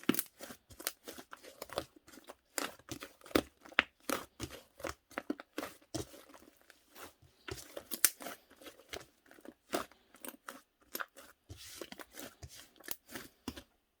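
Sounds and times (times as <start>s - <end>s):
slime crackling and popping: 7.7s - 8.8s.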